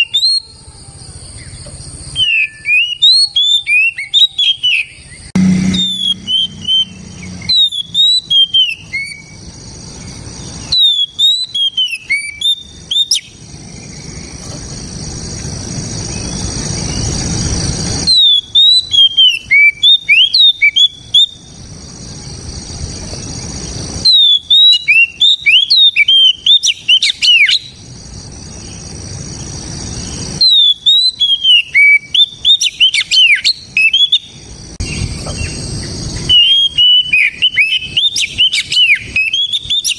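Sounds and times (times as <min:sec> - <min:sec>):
bird singing whistled phrases: 0:02.1 - 0:09.4, 0:10.6 - 0:13.4, 0:18.1 - 0:21.5, 0:24.0 - 0:27.8, 0:30.4 - 0:35.0, 0:36.2 - 0:39.9.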